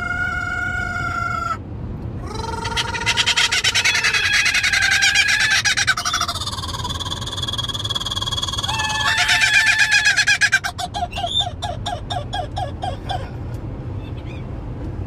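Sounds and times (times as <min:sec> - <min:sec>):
road rumble: 0:00.0 - 0:15.0
bird chattering laugh: 0:02.2 - 0:13.3
bird whistling: 0:11.0 - 0:12.5.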